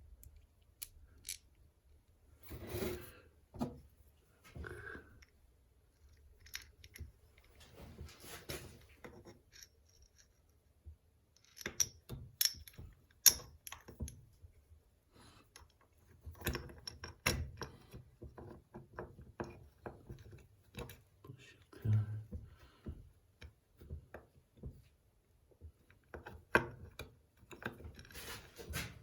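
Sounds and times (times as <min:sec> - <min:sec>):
small metal parts clicking: 0:00.2 - 0:01.6.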